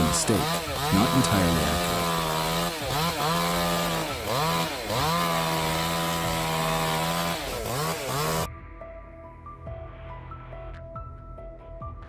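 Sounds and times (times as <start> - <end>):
chainsaw running at high revs: 0.0 - 8.5.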